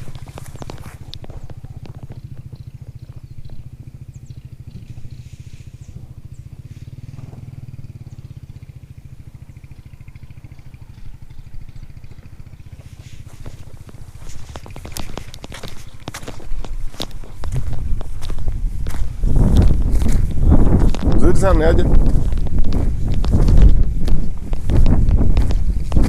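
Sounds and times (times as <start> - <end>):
vehicle engine running: 0.0 - 26.0
sharp clicks and knocks: 13.8 - 18.1.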